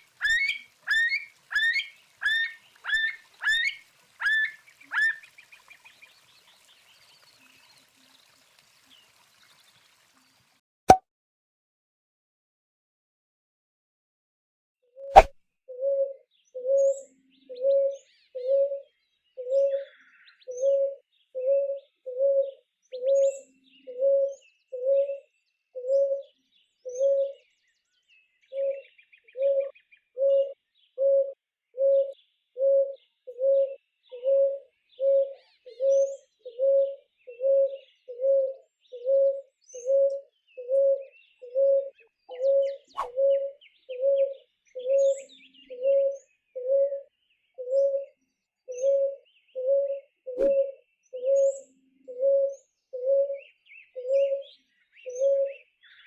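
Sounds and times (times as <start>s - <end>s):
small birds chirping faintly: 0.0s - 10.6s.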